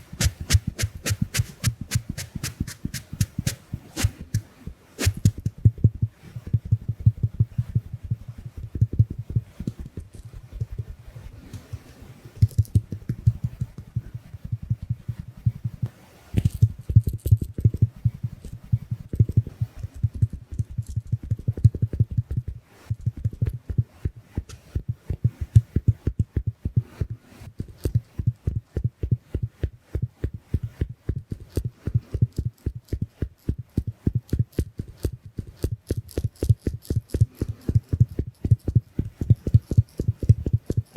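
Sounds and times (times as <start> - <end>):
sponge dabbing on microphone: 0.0 - 5.5.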